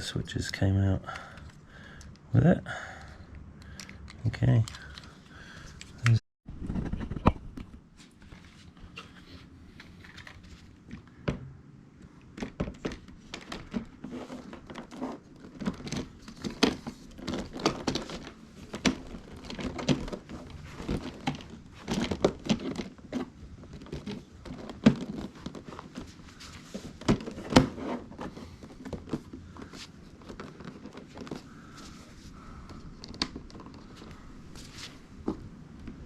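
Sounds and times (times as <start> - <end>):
plastic parts clicking and rattling: 1.0 - 2.3, 3.6 - 6.2, 12.2 - 34.6.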